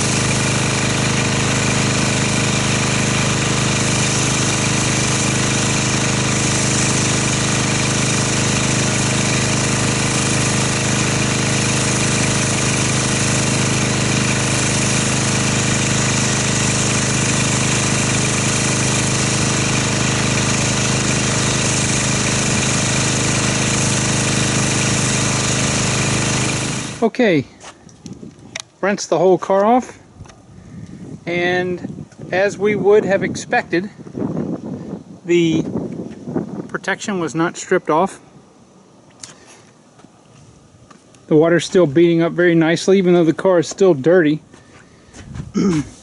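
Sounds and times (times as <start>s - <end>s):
water spray hissing: 0.0s - 27.1s
pressure washer motor drone: 0.0s - 27.4s.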